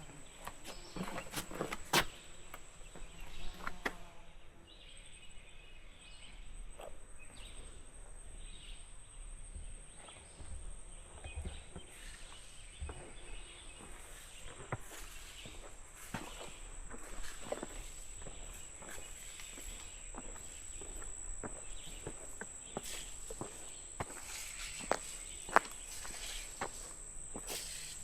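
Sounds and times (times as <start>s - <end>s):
footsteps crunching on a trail: 0.0s - 4.0s, 10.2s - 28.0s
insects calling: 0.0s - 28.0s.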